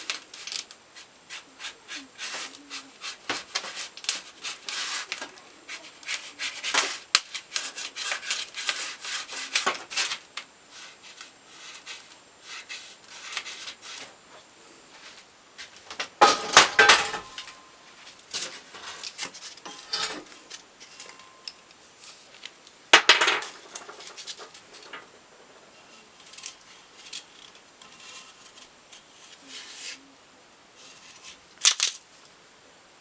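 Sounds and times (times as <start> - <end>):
metal parts and tools clattering: 16.2 - 17.6, 18.3 - 21.6, 22.9 - 25.1.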